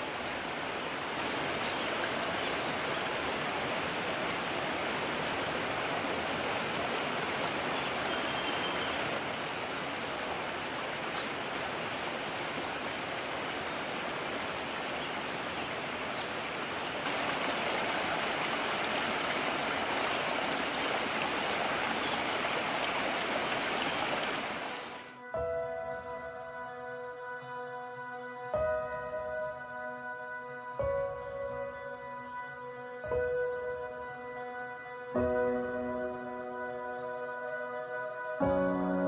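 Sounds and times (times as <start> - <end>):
stream water rushing: 0.0 - 25.2.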